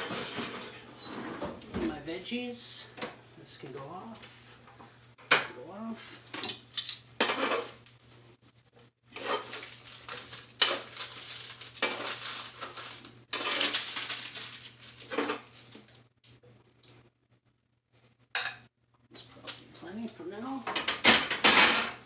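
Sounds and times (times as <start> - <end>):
utensils scraping and clinking pans: 0.0 - 2.0, 3.8 - 7.8, 9.2 - 15.5.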